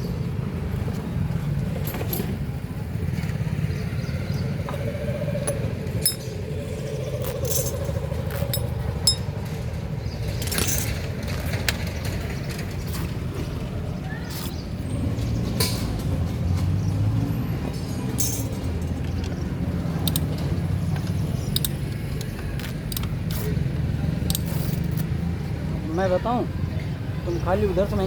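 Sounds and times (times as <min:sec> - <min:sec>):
passing traffic rumble: 0:00.0 - 0:28.0
metal hand tools clinking: 0:05.4 - 0:06.4, 0:07.2 - 0:09.6, 0:10.4 - 0:11.0, 0:18.1 - 0:19.3, 0:19.9 - 0:23.6, 0:24.2 - 0:25.1.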